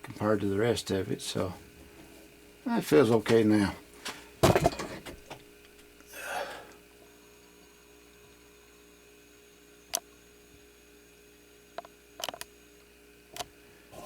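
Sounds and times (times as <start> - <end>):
faint steady hum: 0.0 - 14.0
tools clattering: 4.4 - 5.4.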